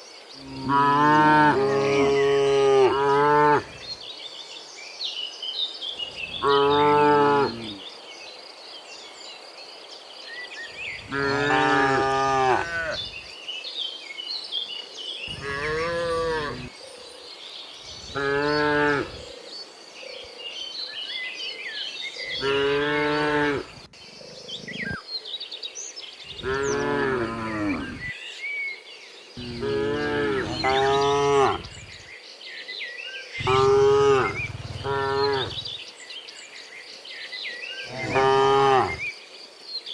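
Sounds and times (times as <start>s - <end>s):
birds chirping: 0.0s - 4.6s, 5.2s - 8.3s, 10.3s - 14.0s, 14.6s - 39.2s
cattle mooing: 0.6s - 3.7s, 11.1s - 13.1s, 15.3s - 16.7s, 26.4s - 28.0s, 29.4s - 31.8s, 33.4s - 35.7s, 37.9s - 39.0s.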